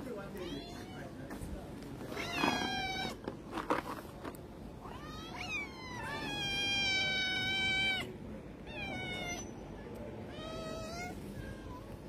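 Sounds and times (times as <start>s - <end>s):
cat meowing: 0.4s - 1.1s, 2.1s - 3.2s, 4.8s - 9.5s, 10.3s - 12.0s.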